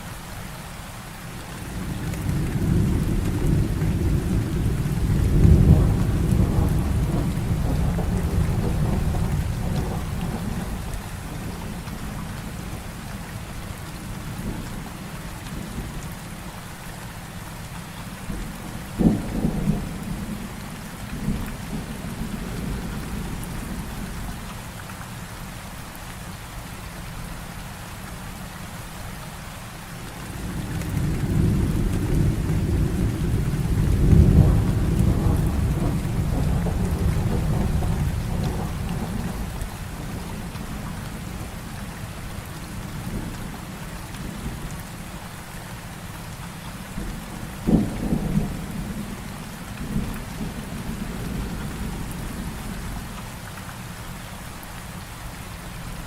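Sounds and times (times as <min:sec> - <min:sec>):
heavy rain falling: 0:00.0 - 0:56.0
thunder rolling: 0:01.8 - 0:11.6, 0:30.3 - 0:41.5
sharp thunder cracks: 0:30.3 - 0:39.6.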